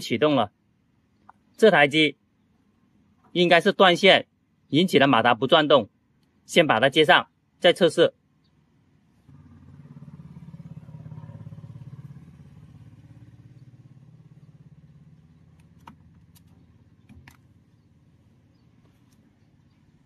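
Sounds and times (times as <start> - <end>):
low fluttering motor hum: 9.2 - 18.8
sharp clicks: 15.5 - 17.6.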